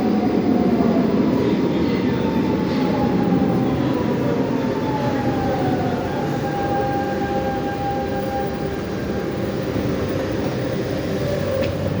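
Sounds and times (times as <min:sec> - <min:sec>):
train rumbling on rails: 0:00.0 - 0:12.0
electric motor whine: 0:05.0 - 0:12.0.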